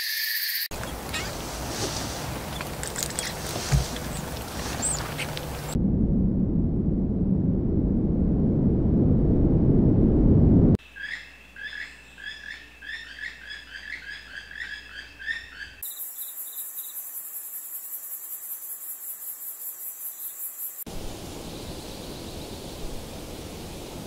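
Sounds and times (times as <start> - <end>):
high pulsing insect trill: 0.0 - 1.3, 15.3 - 22.8
small bird chirping: 0.0 - 5.8
steady hiss: 20.5 - 24.0.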